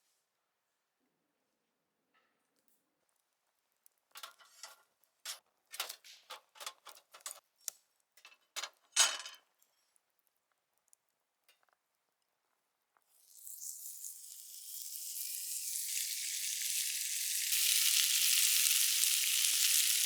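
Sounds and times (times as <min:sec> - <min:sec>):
cooking gear clattering and scraping: 0:04.1 - 0:07.5, 0:08.2 - 0:09.4.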